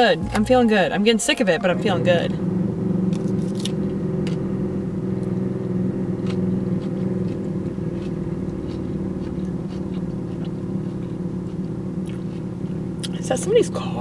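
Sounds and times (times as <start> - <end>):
car engine idling: 0.0 - 14.0
salad chewing crunches: 6.2 - 13.2.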